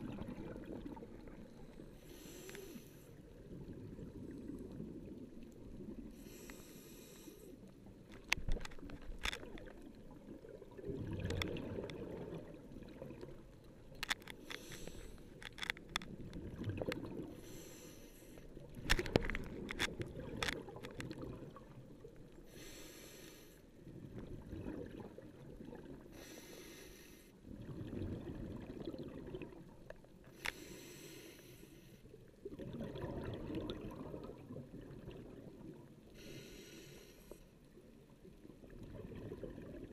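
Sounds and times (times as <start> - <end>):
exhaled bubbles burbling: 0.0 - 1.7, 9.4 - 13.4, 23.9 - 26.0, 27.5 - 29.8, 32.4 - 35.9, 38.6 - 39.9
regulator hiss on inhale: 1.9 - 3.2, 6.1 - 7.7, 14.4 - 15.4, 17.3 - 18.5, 22.5 - 23.7, 26.1 - 27.4, 30.3 - 32.2, 36.1 - 37.6.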